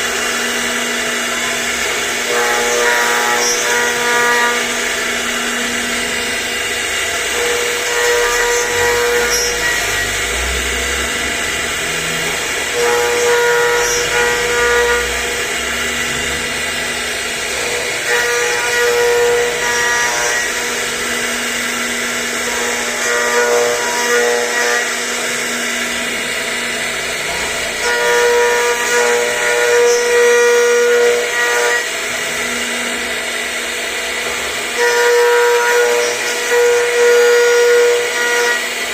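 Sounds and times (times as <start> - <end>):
router spindle whining: 0.0 - 38.9.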